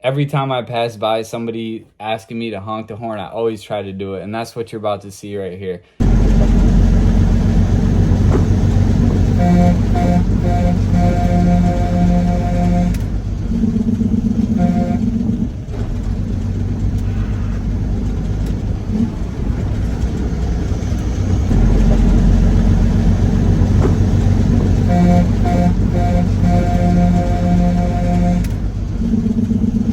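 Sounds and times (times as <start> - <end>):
road noise in cab: 6.0 - 29.9
truck engine: 6.0 - 29.9.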